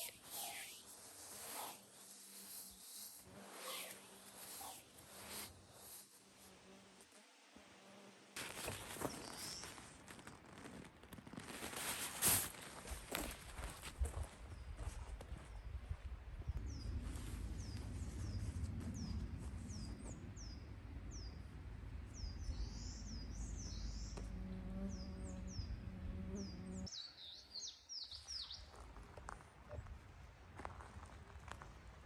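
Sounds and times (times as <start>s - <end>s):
bird chirping: 22.1s - 28.8s.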